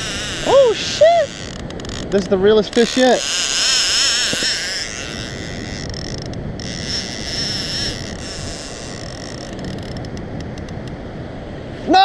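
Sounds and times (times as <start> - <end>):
fishing reel drag buzzing: 0.0 - 10.9
wind: 0.0 - 12.0.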